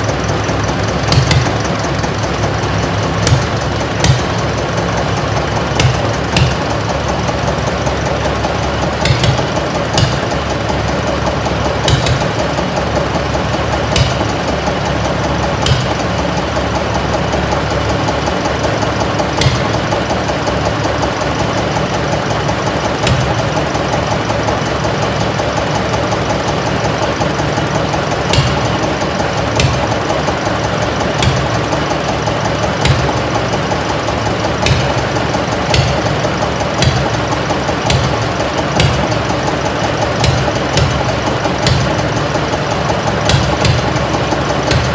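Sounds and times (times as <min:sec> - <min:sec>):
diesel engine running: 0:00.0 - 0:44.9
sharp engine knocks: 0:00.0 - 0:44.9.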